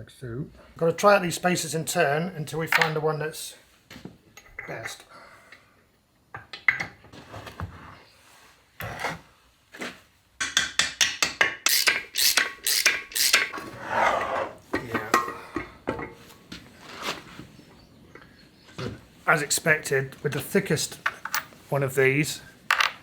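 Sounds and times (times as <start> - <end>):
metal parts clicking and scraping: 11.6 - 15.4, 20.8 - 21.6.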